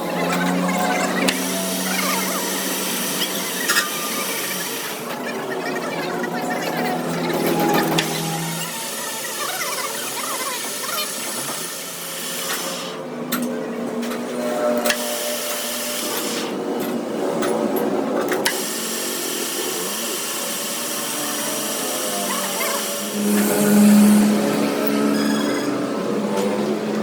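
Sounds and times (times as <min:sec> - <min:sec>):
power tool running: 0:00.0 - 0:13.1, 0:14.0 - 0:16.7, 0:18.4 - 0:27.0.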